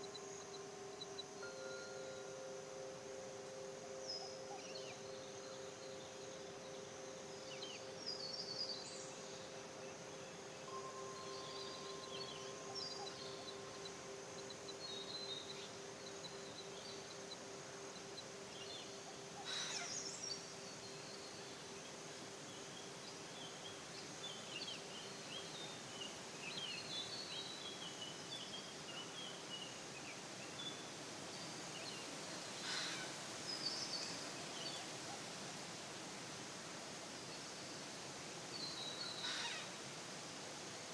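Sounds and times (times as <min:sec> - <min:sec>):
background hiss: 0:00.0 - 0:40.9
small birds chirping: 0:03.5 - 0:35.3.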